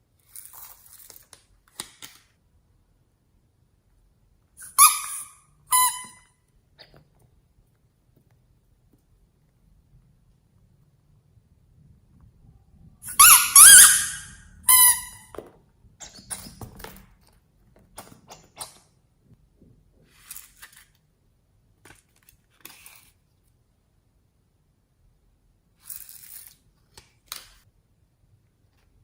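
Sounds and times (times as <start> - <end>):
slime squeaking: 13.1 - 15.3.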